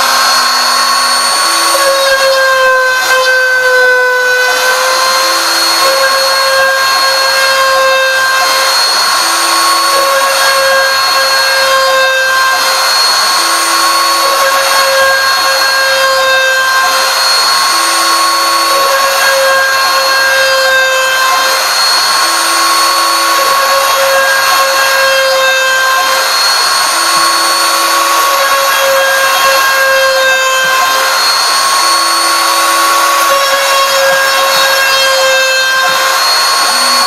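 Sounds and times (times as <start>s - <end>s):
lower machine tone: 0.0s - 37.0s
router spindle high whine: 0.0s - 37.0s.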